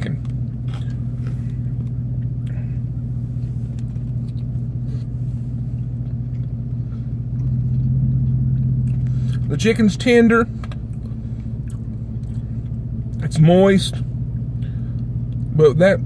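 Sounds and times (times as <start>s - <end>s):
vehicle idling hum: 0.0s - 16.0s
faint chewing: 0.2s - 9.5s, 10.5s - 13.2s.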